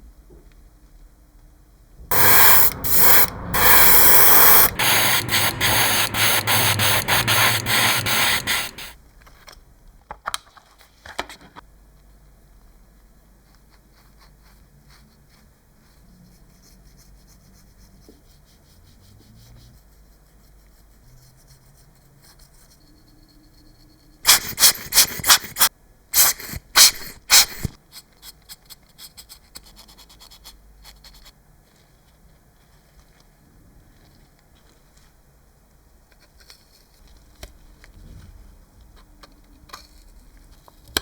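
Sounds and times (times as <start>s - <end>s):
scraping on a hard surface: 2.1s - 9.0s.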